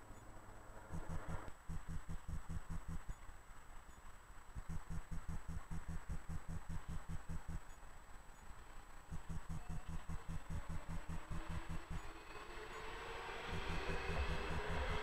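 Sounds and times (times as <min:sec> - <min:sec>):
low throbbing: 0:00.9 - 0:03.1, 0:04.6 - 0:07.6, 0:09.1 - 0:12.1, 0:13.4 - 0:15.0
thin high whine: 0:09.2 - 0:15.0
distant electric train approaching: 0:11.2 - 0:15.0.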